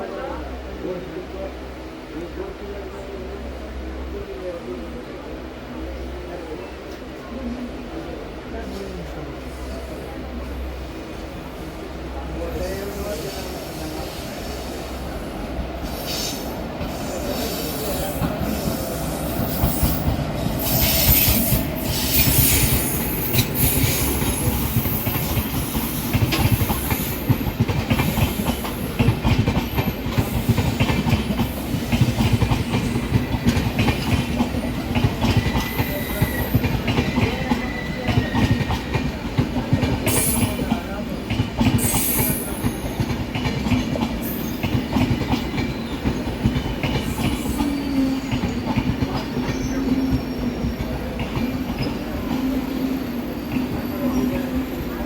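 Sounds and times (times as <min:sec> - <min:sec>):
train wheels clattering: 0:15.8 - 0:52.5
wheel squeal and hiss: 0:15.9 - 0:19.9, 0:20.6 - 0:27.2, 0:41.8 - 0:43.0.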